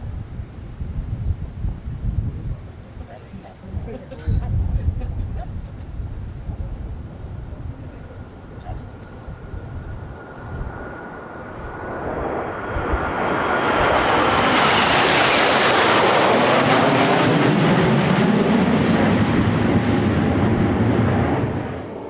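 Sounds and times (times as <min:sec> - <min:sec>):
jet aircraft passing: 0:06.1 - 0:22.0.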